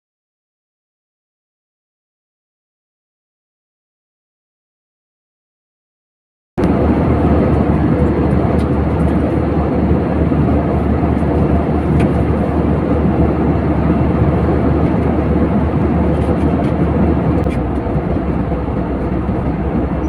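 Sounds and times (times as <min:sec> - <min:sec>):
airliner cabin engine noise: 0:06.6 - 0:20.0.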